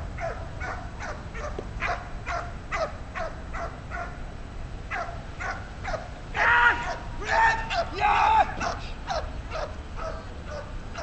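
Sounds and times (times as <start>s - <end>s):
dog barking and yelping: 0.1s - 4.2s, 4.9s - 6.1s, 8.6s - 11.0s.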